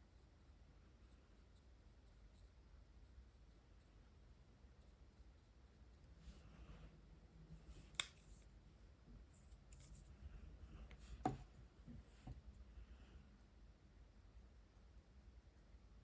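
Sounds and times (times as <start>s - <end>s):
marker sharp clicks: 7.9s - 8.4s
markers scratching on paper: 9.3s - 10.1s
soft tap: 11.2s - 12.4s.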